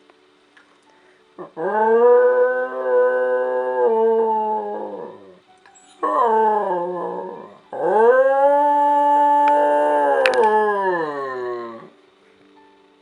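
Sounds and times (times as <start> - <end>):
dog howling: 1.4 - 5.4, 6.0 - 11.9.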